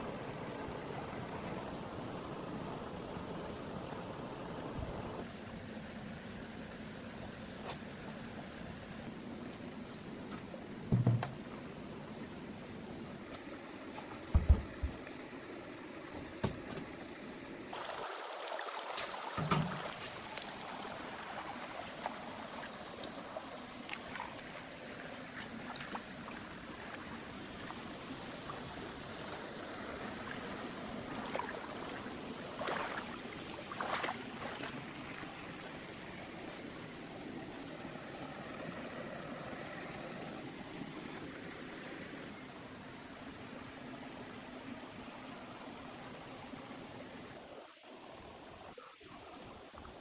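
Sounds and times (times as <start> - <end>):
flowing water rushing: 0.0 - 50.0.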